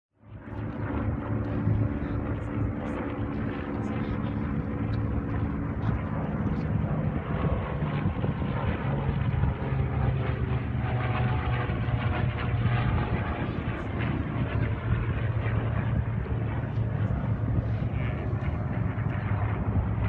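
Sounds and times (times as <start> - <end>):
propeller airplane engine droning: 0.2 - 20.0.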